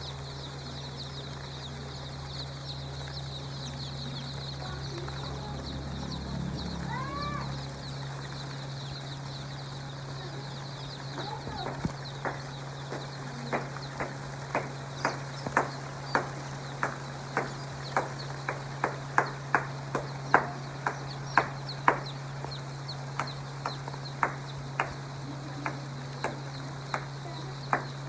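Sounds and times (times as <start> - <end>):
low hum: 0.0 - 28.0
chickens clucking: 0.1 - 28.0.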